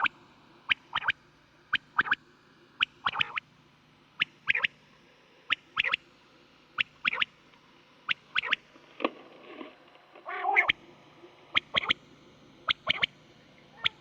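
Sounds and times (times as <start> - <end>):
steady low hum: 0.0 - 14.0
quail calls: 0.7 - 2.2, 2.8 - 3.4, 4.2 - 4.8, 5.5 - 6.0, 6.8 - 7.3, 8.1 - 8.6, 10.2 - 10.8, 11.5 - 12.0, 12.6 - 13.1, 13.7 - 14.0.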